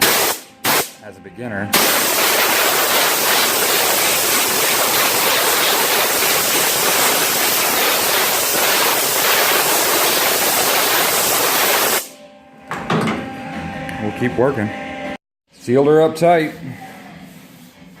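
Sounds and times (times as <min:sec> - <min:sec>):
welder crackling hiss: 0:01.8 - 0:12.1.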